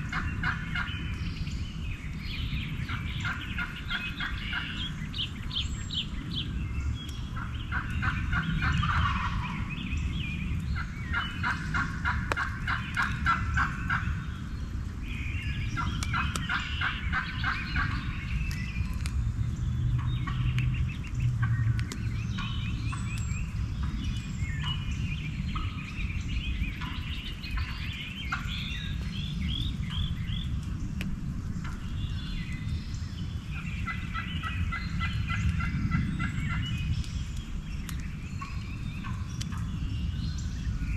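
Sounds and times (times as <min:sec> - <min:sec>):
low rumble: 0:00.0 - 0:40.9
turkeys gobbling: 0:00.1 - 0:00.9, 0:02.9 - 0:04.8, 0:07.3 - 0:09.6, 0:10.8 - 0:14.2, 0:15.8 - 0:18.1, 0:22.4 - 0:22.6, 0:26.8 - 0:28.5, 0:33.8 - 0:36.7.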